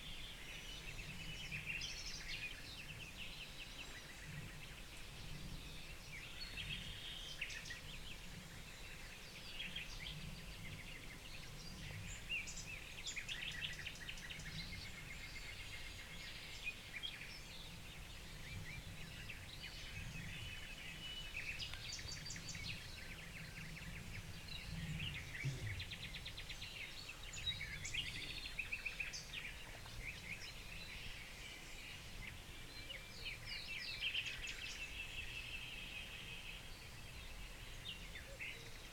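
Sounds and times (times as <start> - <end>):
wild birds chirping and trilling: 0.0 - 38.9.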